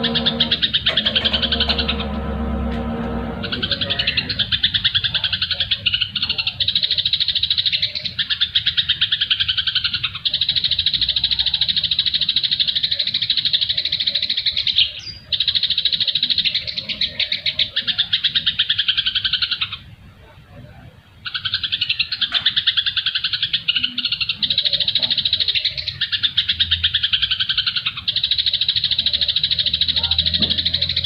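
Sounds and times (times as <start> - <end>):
songbird chatter: 21.2 - 31.0.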